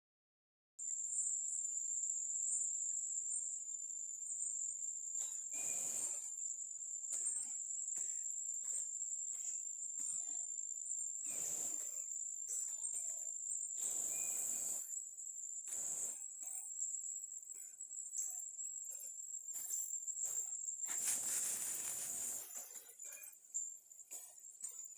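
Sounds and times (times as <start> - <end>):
insects droning: 20.2 - 23.1.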